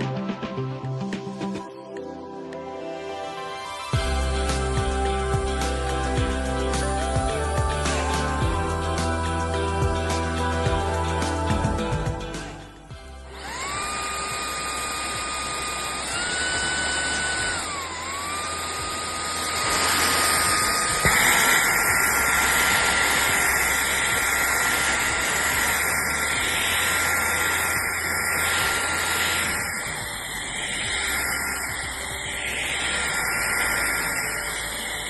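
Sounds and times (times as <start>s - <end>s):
stick vacuum motor whine: 12.9s - 35.0s.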